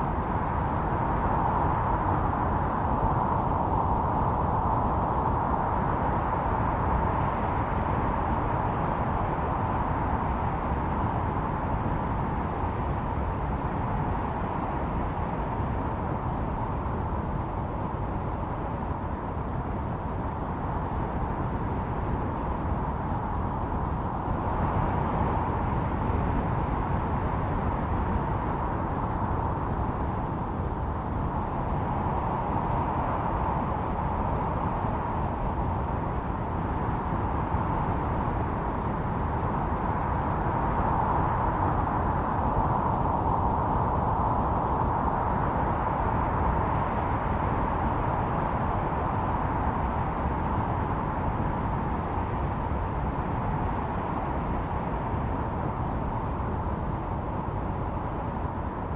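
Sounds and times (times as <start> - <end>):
blizzard wind howling: 0.0 - 58.9.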